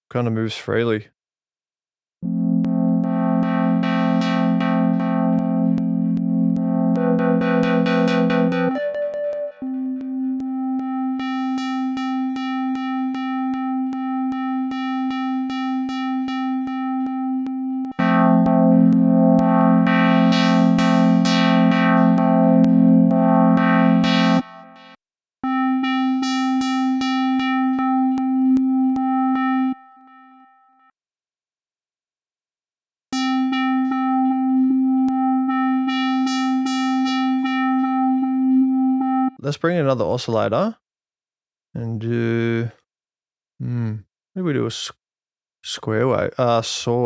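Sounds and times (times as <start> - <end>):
filtered synth chord: 2.2 - 30.9, 33.2 - 39.4
square wave synth rhythm: 2.2 - 30.9, 33.1 - 39.6.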